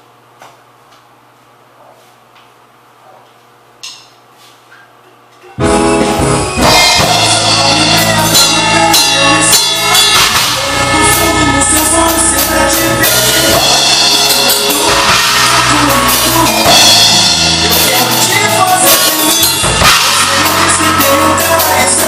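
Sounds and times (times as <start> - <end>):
drum kit playing: 5.6 - 22.0
recorded song with singer and bass: 5.6 - 22.0.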